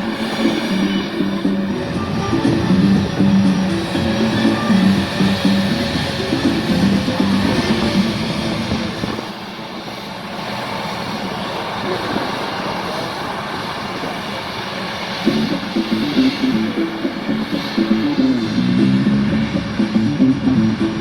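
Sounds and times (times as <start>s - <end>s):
music over loudspeakers: 0.0s - 8.1s, 15.3s - 21.0s
jet engines running: 0.0s - 21.0s.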